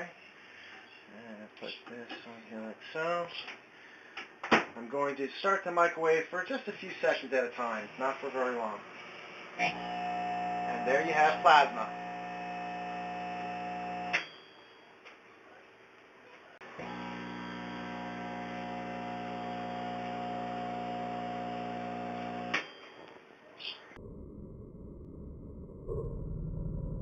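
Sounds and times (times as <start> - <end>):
microwave oven humming: 9.6 - 14.2, 16.7 - 22.6.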